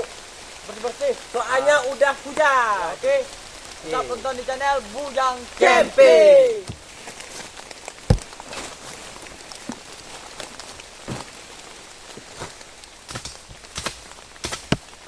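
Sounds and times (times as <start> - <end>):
rain hiss: 0.0 - 15.0
knocks and thumps: 8.1 - 8.4.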